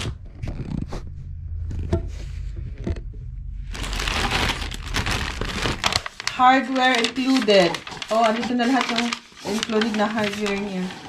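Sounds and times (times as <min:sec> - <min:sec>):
packaging rustling: 0:03.7 - 0:11.0.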